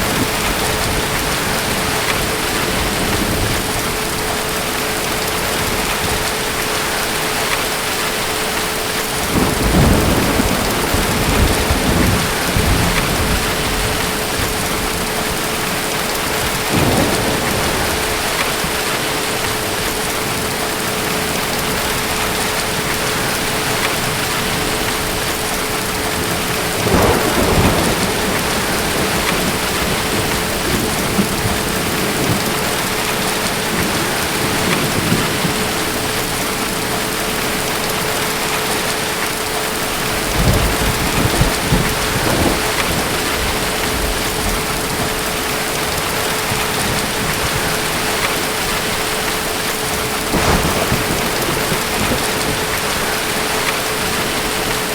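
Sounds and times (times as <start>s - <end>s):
heavy rain hissing: 0.0s - 54.9s
rolling thunder: 9.2s - 38.0s, 40.0s - 54.9s.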